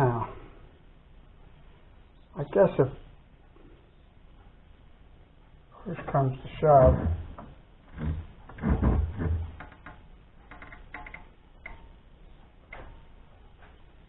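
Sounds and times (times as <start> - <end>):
heavy thumps: 6.5 - 10.6.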